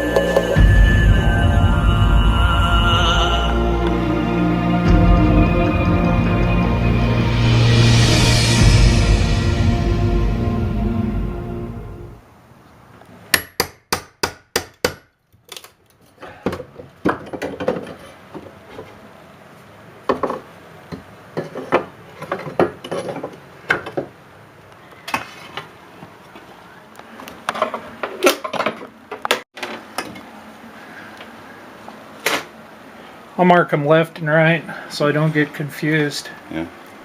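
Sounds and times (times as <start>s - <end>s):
tools clattering on wood: 21.4s - 24.1s.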